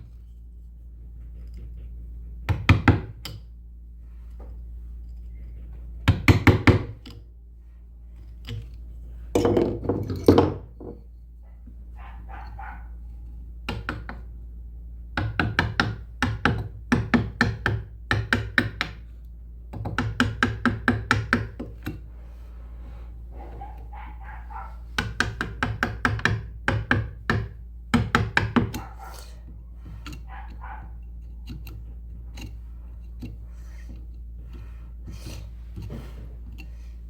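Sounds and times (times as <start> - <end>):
hammering on wood: 2.4 - 3.3, 6.0 - 7.0, 13.7 - 14.3, 15.1 - 19.0, 19.7 - 22.0, 23.4 - 31.7.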